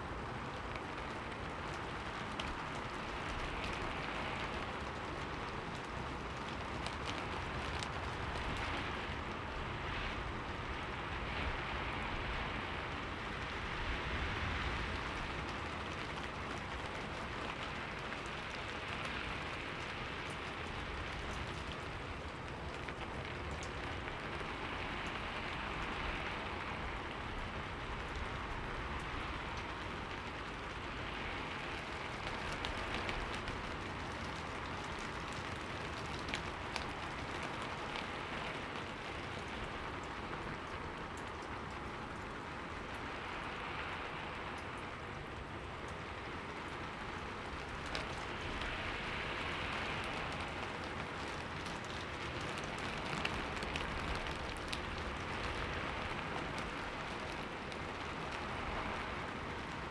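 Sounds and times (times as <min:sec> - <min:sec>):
rain on a window: 0:00.0 - 0:59.9.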